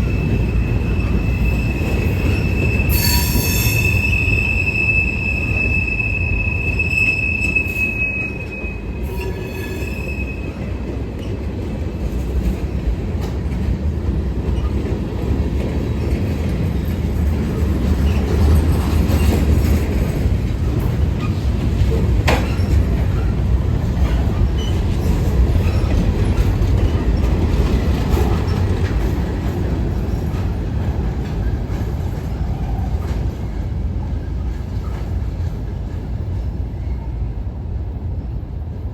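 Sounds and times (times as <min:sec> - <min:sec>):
high-pitched wheel squeal: 0:00.0 - 0:10.6
railroad cars rumbling: 0:00.0 - 0:38.9.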